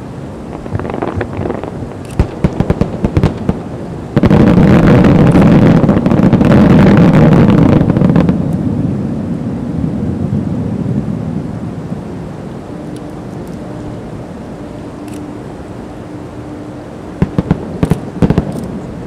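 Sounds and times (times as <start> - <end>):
fireworks crackling: 0.5 - 8.5, 17.2 - 18.7.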